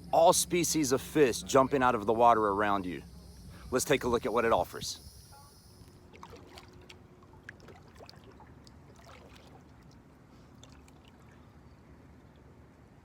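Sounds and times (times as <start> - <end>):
steady low rumble: 0.0 - 7.7
paddles splashing in water: 6.1 - 11.5.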